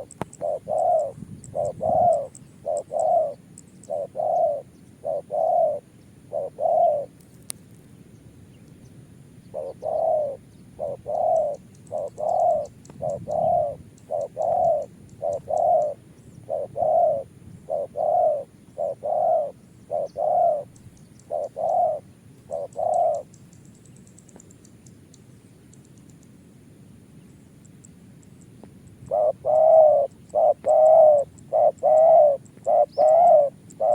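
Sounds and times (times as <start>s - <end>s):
dove cooing: 0.0s - 7.2s, 9.4s - 23.4s, 29.0s - 33.9s.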